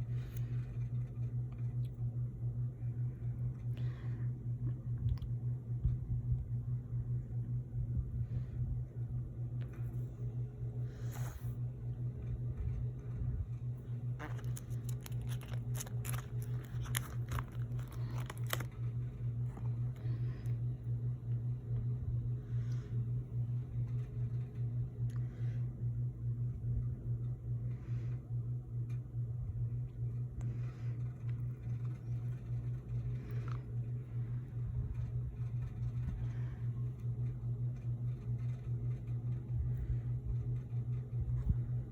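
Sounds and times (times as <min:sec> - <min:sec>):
steady low hum: 0:00.0 - 0:41.9
cards and plastic crinkling: 0:14.1 - 0:20.0.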